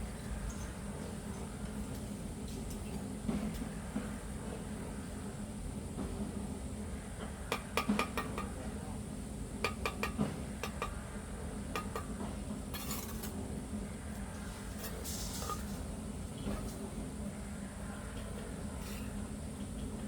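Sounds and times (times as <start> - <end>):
scraping sounds: 14.4 - 15.9.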